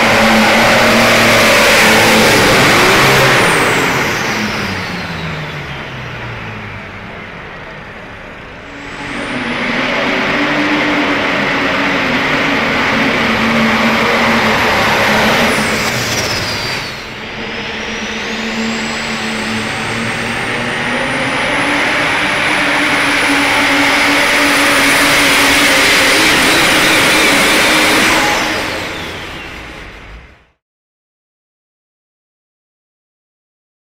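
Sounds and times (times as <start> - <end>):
engine running at full power: 0.0 - 30.6
high whine: 0.0 - 30.6.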